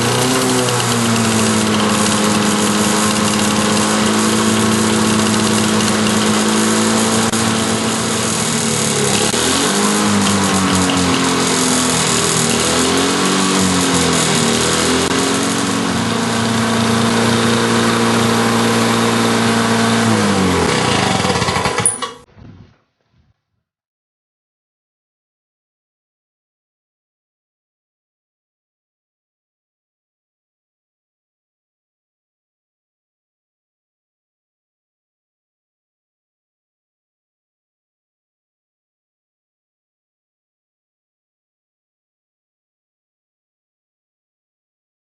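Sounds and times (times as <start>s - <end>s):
lawn mower engine running: 0.0s - 22.3s.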